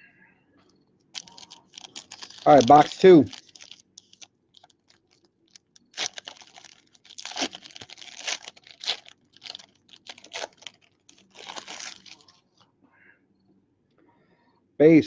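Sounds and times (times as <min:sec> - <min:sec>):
plastic wrap tearing and crinkling: 0:01.2 - 0:12.5.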